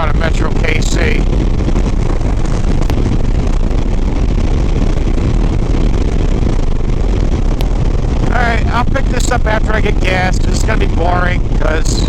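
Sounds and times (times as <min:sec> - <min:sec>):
motorcycle engine drone: 0:00.0 - 0:12.0
wind rush: 0:00.0 - 0:12.0.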